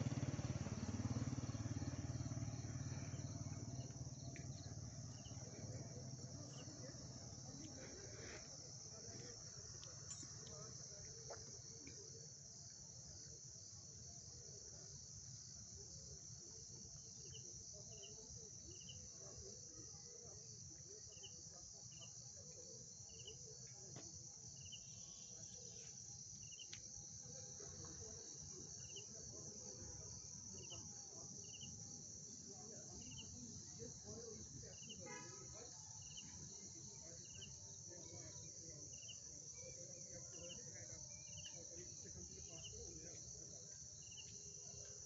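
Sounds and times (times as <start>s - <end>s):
short cricket chirps: 0.0s - 29.4s, 30.0s - 45.0s
crickets trilling: 0.0s - 45.0s.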